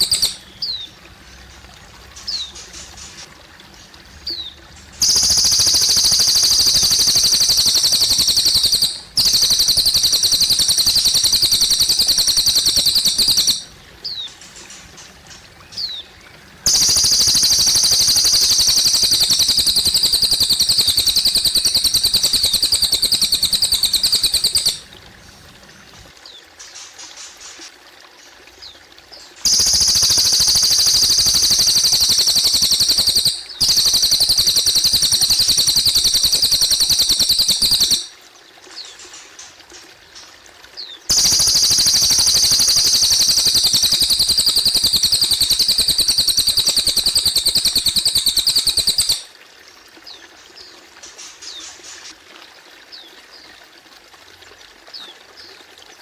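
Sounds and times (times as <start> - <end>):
songbird high rapid trills: 0.0 - 0.8, 5.0 - 15.1, 16.7 - 24.9, 29.4 - 38.1, 41.1 - 49.3
water trickling: 0.0 - 56.0.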